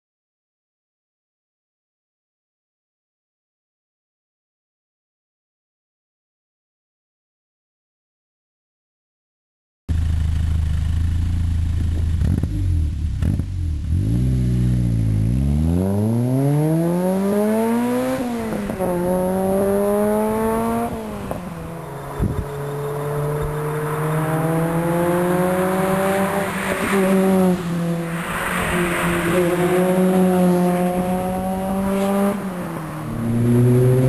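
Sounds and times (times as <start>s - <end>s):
sports car engine accelerating: 9.9s - 34.0s.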